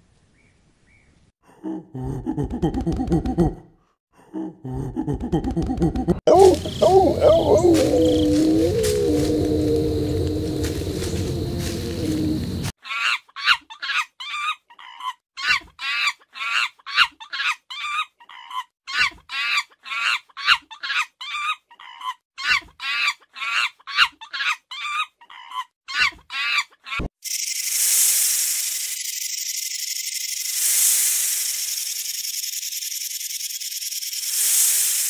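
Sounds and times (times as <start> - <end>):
baboon high-pitched calls: 6.3 - 9.7.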